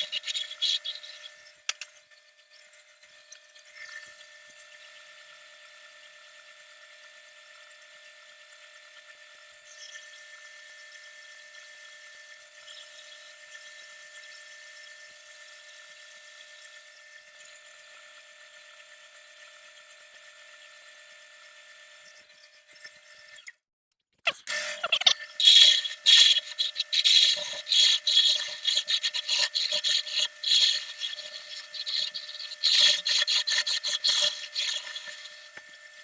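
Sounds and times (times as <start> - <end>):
power tool whining: 25.3 - 35.7.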